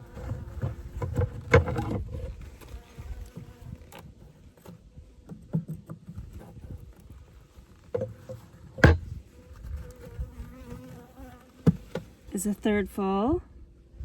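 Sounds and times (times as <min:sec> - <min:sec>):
wooden hive frames knocking: 0:08.0 - 0:09.2.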